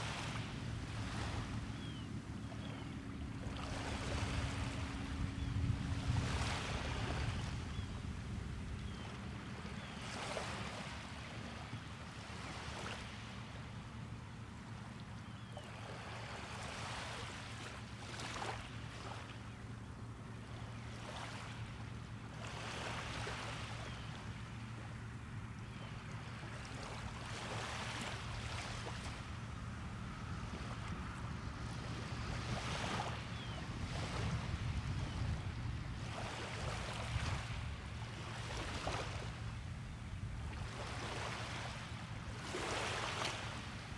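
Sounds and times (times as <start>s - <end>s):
small waves breaking on beach: 0.0s - 2.0s, 3.4s - 7.8s, 15.8s - 19.4s, 20.8s - 24.0s, 26.2s - 43.9s
low steady hum: 23.4s - 42.5s.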